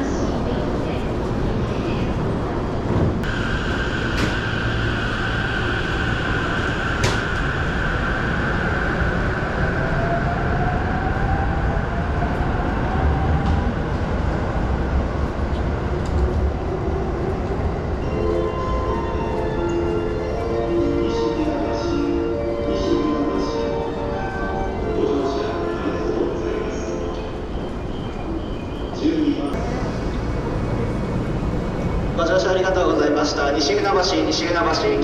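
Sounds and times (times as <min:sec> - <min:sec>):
electric train rumbling: 0:00.0 - 0:35.0
steady high tone: 0:03.2 - 0:11.4
train motor whine rising: 0:03.3 - 0:10.6.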